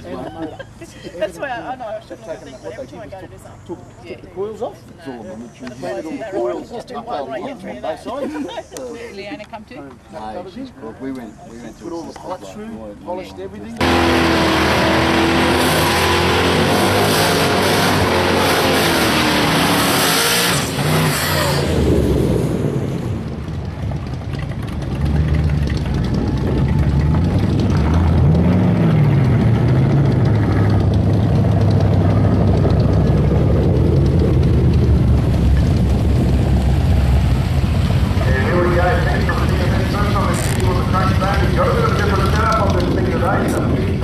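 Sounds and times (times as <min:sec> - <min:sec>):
car engine revving: 0:13.8 - 0:44.0.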